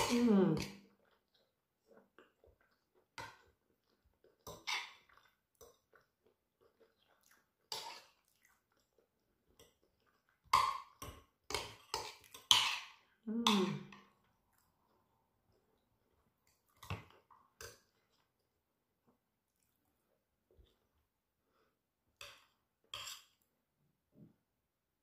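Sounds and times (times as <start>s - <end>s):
person chewing with mouth noises: 0.9s - 18.5s.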